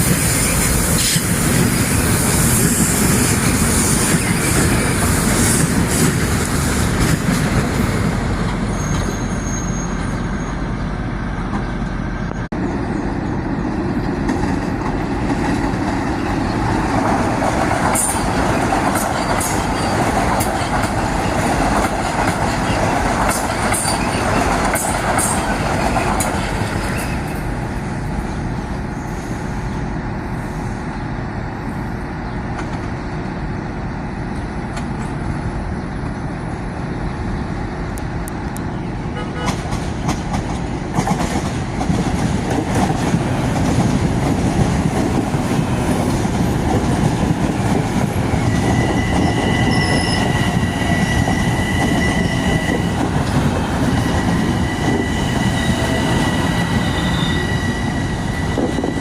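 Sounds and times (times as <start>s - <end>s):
train wheels rumbling on rail: 0.0s - 59.0s
high wheel squeals and clicks: 8.6s - 10.6s, 48.3s - 59.0s.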